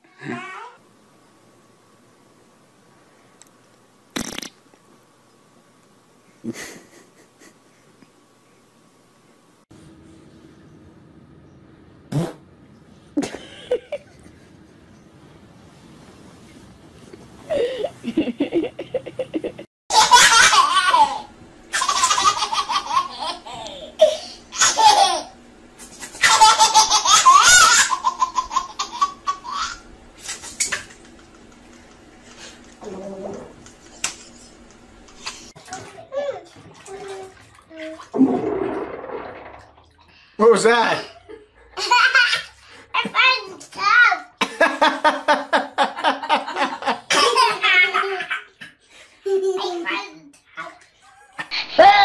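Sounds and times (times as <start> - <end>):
baby passing gas: 4.2 - 4.6
baby laughing: 18.5 - 25.4, 26.2 - 29.9.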